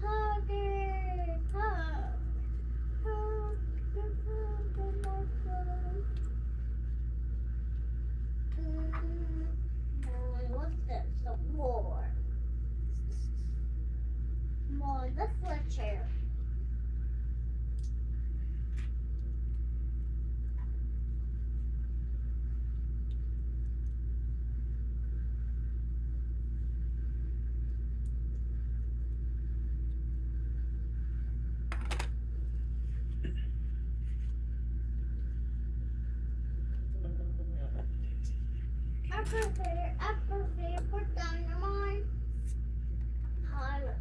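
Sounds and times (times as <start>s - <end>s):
steady low hum: 0.0s - 44.0s
faint clicks: 17.7s - 18.0s.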